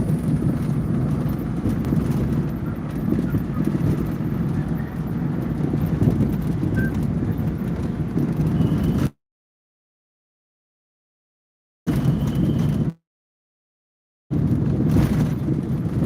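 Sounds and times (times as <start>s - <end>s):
road and engine noise inside car: 0.0s - 9.1s, 14.4s - 16.0s.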